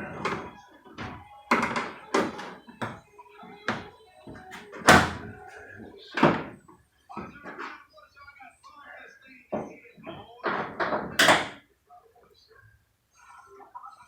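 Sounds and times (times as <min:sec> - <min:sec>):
door panel clips snapping: 0:04.5 - 0:05.2
panel knocking against door: 0:04.9 - 0:05.3.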